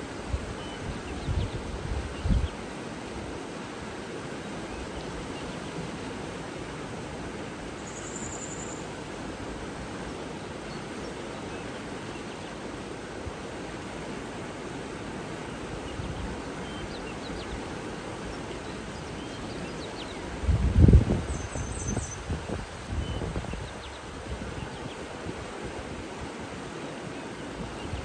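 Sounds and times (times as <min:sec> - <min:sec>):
running water rushing: 0:00.0 - 0:28.0
faint bird chirps: 0:07.8 - 0:08.9.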